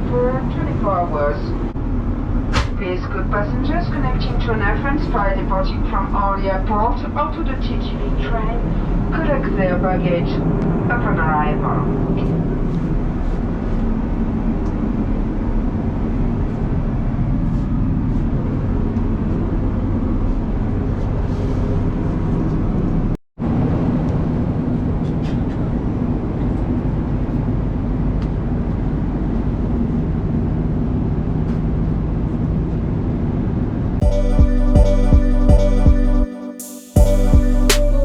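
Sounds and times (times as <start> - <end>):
airplane cabin drone: 0.0 - 38.0.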